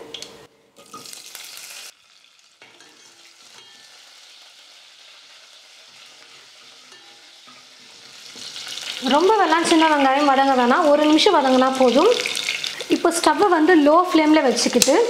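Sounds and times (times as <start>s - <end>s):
food sizzling in hot oil: 0.8s - 15.0s
steel ladle stirring: 2.6s - 4.1s, 6.2s - 8.6s.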